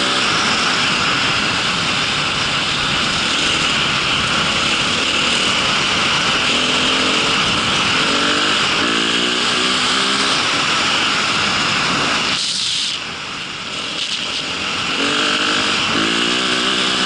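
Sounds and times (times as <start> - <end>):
motor vehicle running: 0.0 - 17.0.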